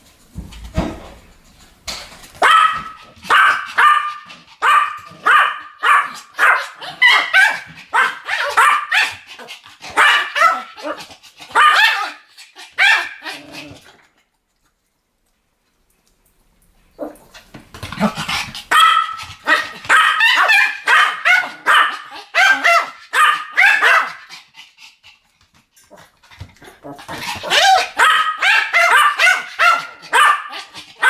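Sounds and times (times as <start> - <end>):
small dogs yapping: 2.4 - 9.3, 9.9 - 13.8, 17.0 - 24.3, 26.8 - 31.0.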